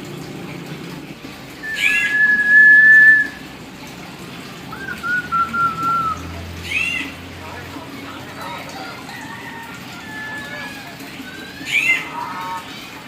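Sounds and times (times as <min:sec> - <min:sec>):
myna whistling: 0:01.6 - 0:03.4, 0:04.7 - 0:06.9.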